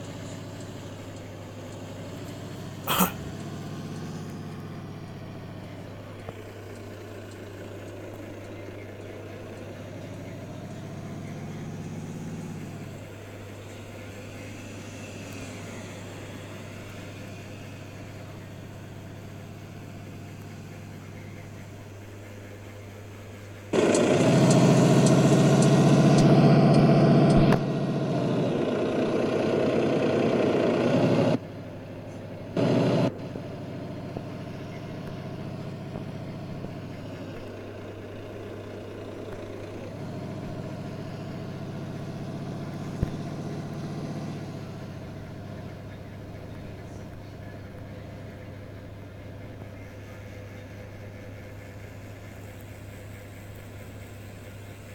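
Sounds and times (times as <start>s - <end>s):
truck engine humming: 0.0s - 54.9s
loud noise: 2.9s - 3.3s.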